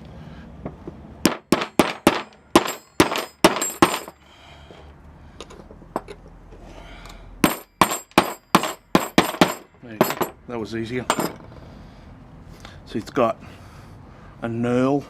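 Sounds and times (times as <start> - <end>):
hammer striking steel: 1.2 - 4.2, 7.4 - 10.4.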